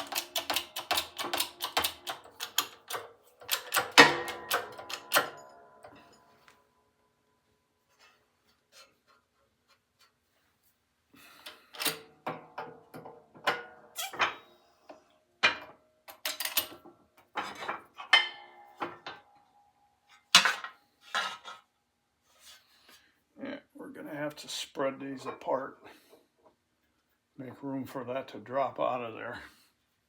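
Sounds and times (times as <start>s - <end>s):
metal parts clinking: 0.0s - 6.1s, 16.1s - 16.8s.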